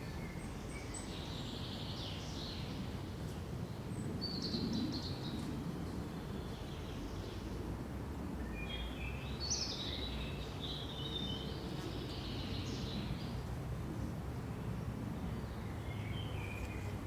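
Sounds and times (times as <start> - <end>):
songbirds singing: 15.3 - 16.9.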